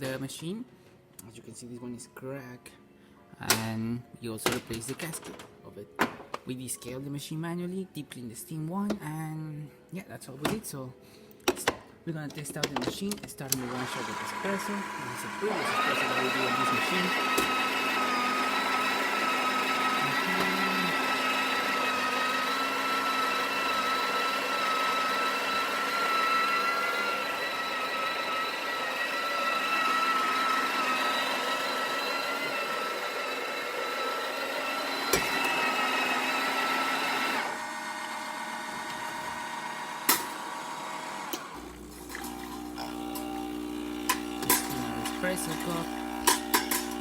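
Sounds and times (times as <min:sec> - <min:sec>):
espresso machine humming: 0:13.6 - 0:47.0.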